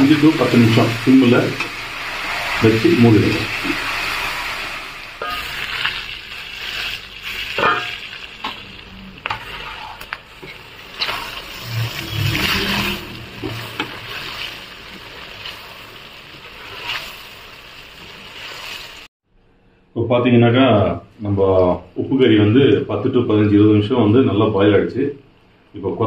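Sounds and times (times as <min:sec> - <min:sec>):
metal spatula scraping a pan: 0:00.0 - 0:17.3
food sizzling in a pan: 0:00.0 - 0:19.1.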